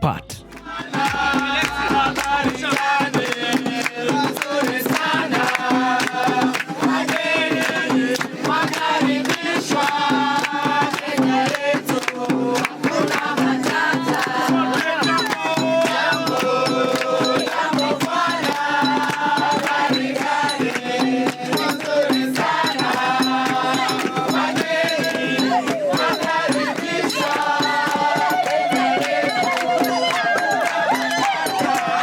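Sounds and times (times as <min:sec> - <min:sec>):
pulsing bass note: 0:00.0 - 0:02.6
person singing: 0:00.0 - 0:03.3
percussion beat: 0:00.0 - 0:32.0.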